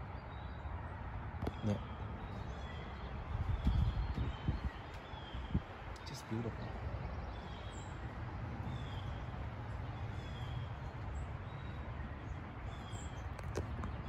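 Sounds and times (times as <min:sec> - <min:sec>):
steady low rumble: 0:00.0 - 0:06.0
birds chirping: 0:00.0 - 0:14.0.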